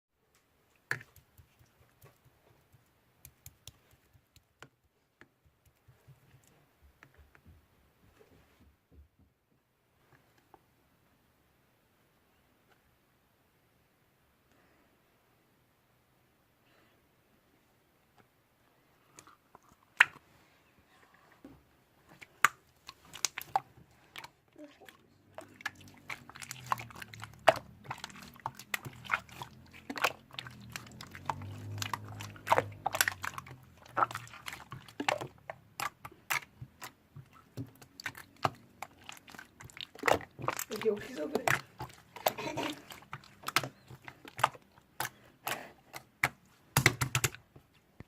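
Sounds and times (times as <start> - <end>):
soft squishes: 0.3 - 7.4, 18.2 - 48.0.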